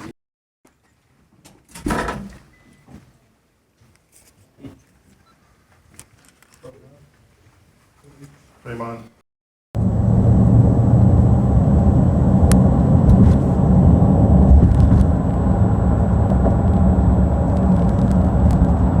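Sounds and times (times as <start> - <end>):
vehicle engine rumbling: 9.8 - 19.0.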